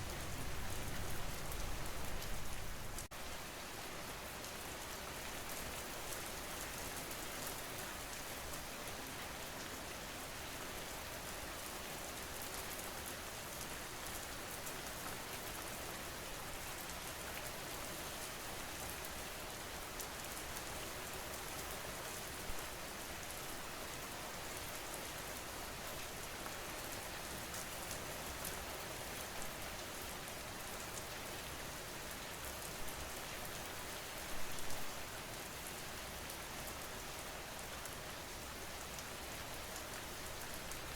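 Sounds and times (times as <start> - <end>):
rain falling on a surface: 0.0 - 40.9.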